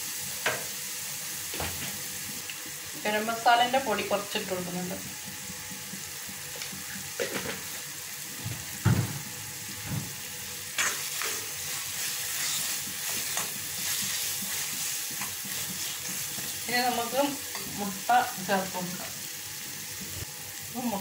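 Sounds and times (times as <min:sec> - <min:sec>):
masala sizzling in a pan: 0:00.0 - 0:21.0
knocks on a pan: 0:08.4 - 0:09.3
steel spoon scraping a pan: 0:10.8 - 0:17.9.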